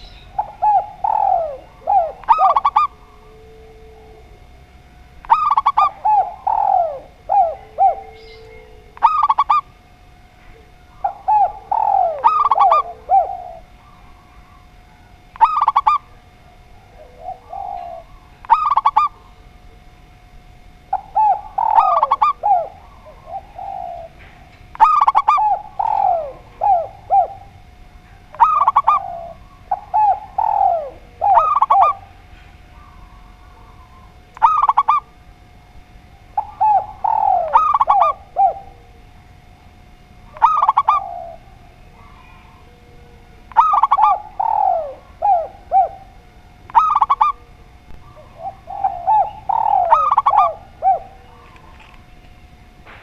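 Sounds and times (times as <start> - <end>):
doves cooing: 0.0 - 53.0
faint steady tone: 0.0 - 53.0.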